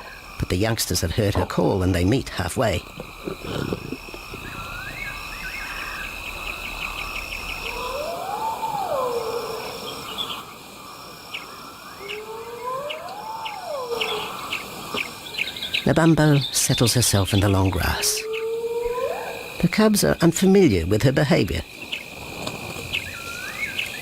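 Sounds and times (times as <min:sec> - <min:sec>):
insects trilling and chirping: 0:00.0 - 0:24.0
rising and falling whistled calls: 0:04.4 - 0:10.5, 0:11.3 - 0:19.6, 0:22.9 - 0:24.0.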